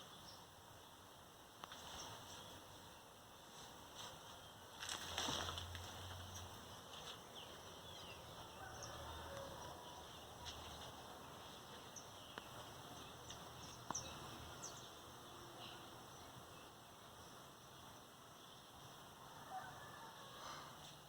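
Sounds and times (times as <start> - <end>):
bird chirps: 7.3 - 16.7.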